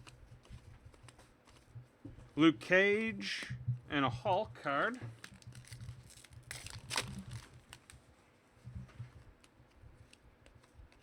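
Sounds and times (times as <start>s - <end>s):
cards rustling: 0.0s - 1.8s, 4.8s - 8.0s
low steady hum: 0.0s - 11.0s.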